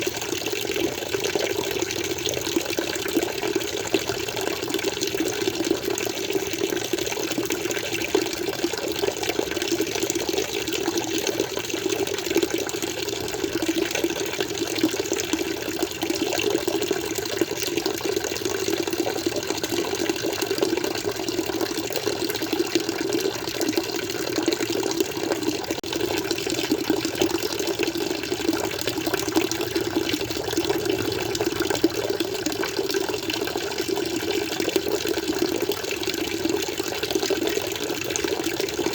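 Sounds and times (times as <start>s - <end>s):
water gushing and splashing: 8.2s - 38.9s.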